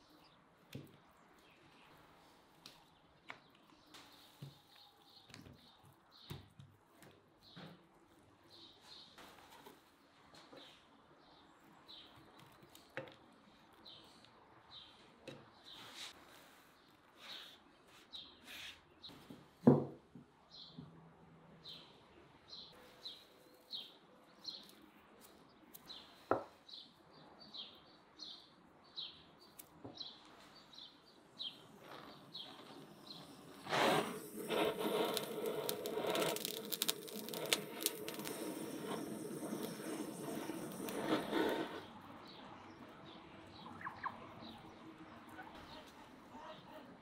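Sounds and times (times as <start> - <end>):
small bird chirping: 29.0 - 41.6, 43.5 - 45.9
dense crackling noise: 31.6 - 41.8.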